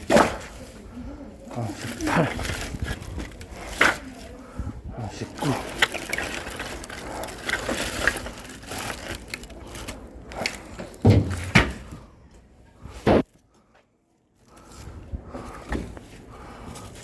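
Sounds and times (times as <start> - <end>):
firewood logs knocking: 10.8 - 11.9
heavy log thuds: 11.0 - 11.8.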